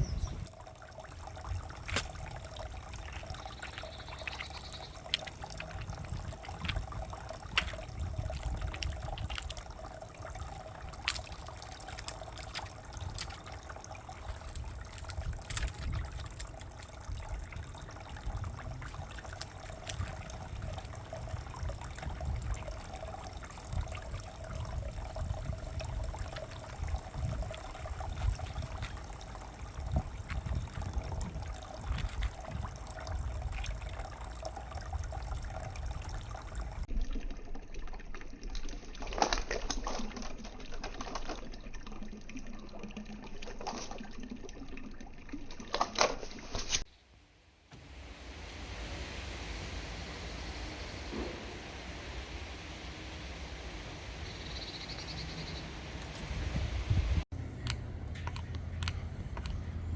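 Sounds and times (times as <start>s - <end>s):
water trickling: 0.0s - 46.9s, 47.7s - 59.9s
sharp clicks: 57.5s - 59.9s.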